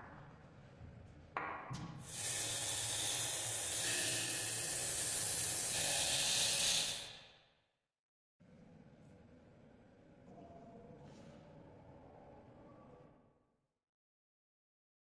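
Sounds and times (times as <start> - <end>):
aerosol spray paint hissing: 2.0 - 7.2.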